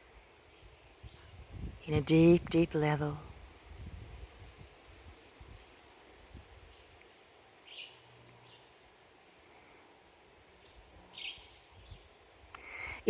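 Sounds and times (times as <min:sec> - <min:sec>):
faint steady high tone: 0:00.0 - 0:04.0.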